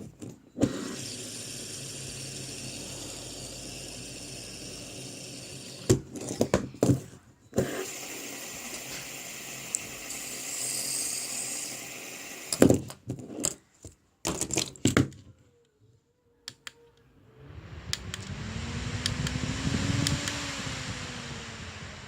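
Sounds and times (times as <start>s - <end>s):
spinning toy whirring: 0.6s - 6.5s, 7.6s - 12.6s.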